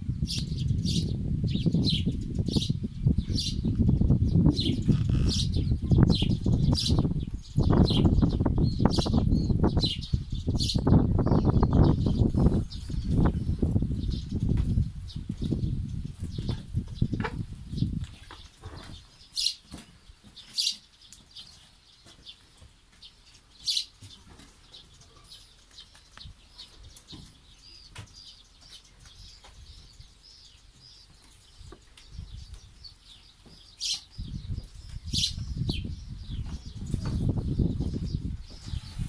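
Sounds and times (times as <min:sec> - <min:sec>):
microphone rumbling noise: 0:00.0 - 0:19.0, 0:34.1 - 0:39.0
small birds chirping: 0:00.1 - 0:39.0.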